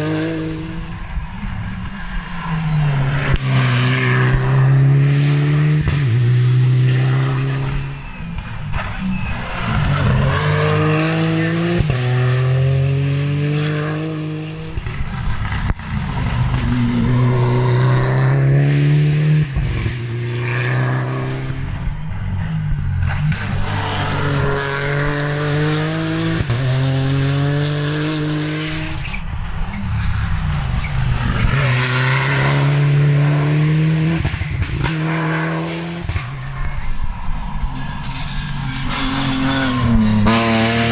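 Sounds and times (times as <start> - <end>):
rally car engines accelerating: 0.0 - 40.9.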